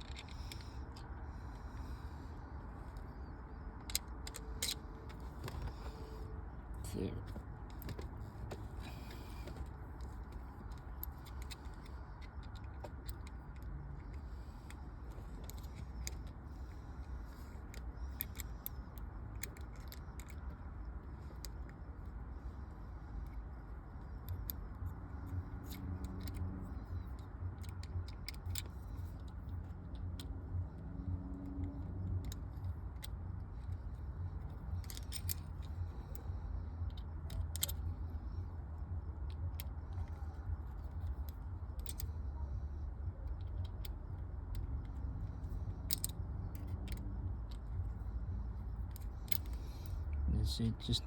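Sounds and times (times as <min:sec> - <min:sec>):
metal hardware clicking: 0:31.5 - 0:38.4, 0:43.3 - 0:48.0.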